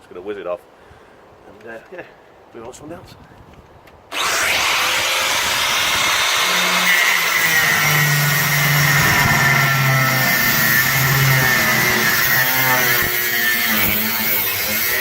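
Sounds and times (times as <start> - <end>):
power cutter slicing sheet steel: 4.1 - 15.0.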